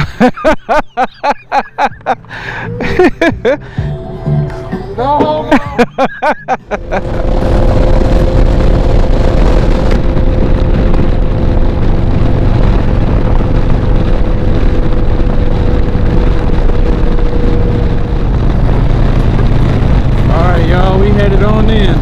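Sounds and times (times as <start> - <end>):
wind rushing over microphone: 0.0 - 22.0
motorcycle engine running: 6.7 - 22.0.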